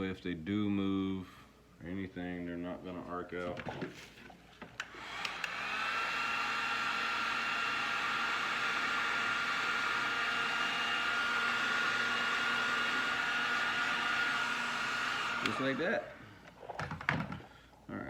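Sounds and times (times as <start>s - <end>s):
heat gun fan blowing: 4.8s - 16.7s.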